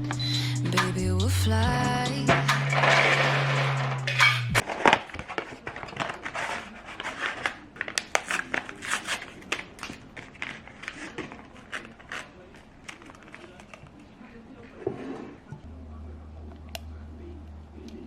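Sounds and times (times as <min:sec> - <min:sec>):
background music: 0:00.0 - 0:04.6
handling clicks and crinkles: 0:02.5 - 0:14.7.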